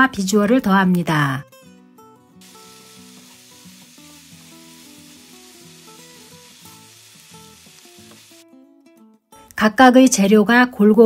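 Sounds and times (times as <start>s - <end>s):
food sizzling in a frying pan: 2.4s - 8.4s.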